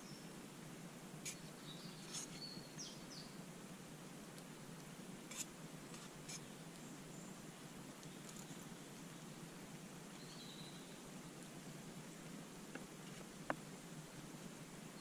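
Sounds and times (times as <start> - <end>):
steady background hiss: 0.0 - 15.0
small bird chirping: 1.2 - 3.4, 10.1 - 11.1.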